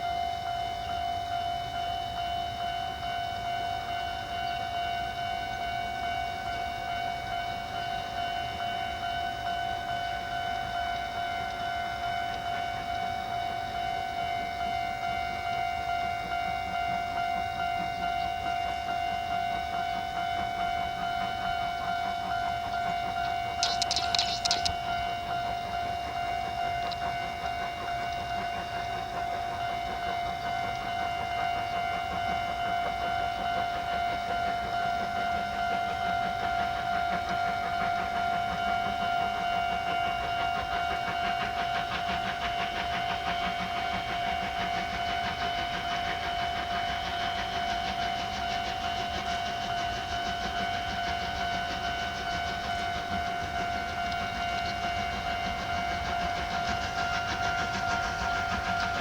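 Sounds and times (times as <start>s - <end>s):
steady high-pitched tone: 0.0s - 28.9s
low rumble of a train: 0.0s - 59.0s.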